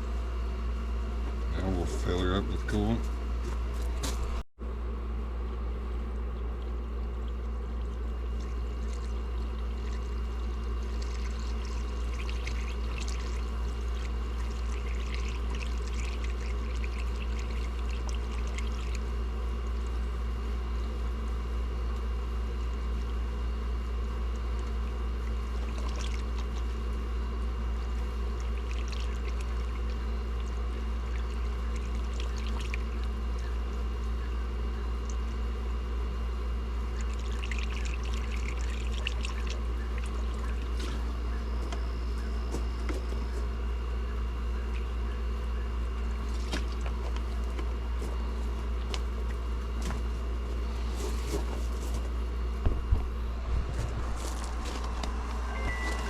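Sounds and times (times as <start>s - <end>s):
constant low hum: 0.0s - 56.0s
liquid pouring and trickling: 6.6s - 20.0s, 24.4s - 26.8s, 27.8s - 33.9s, 36.9s - 41.0s.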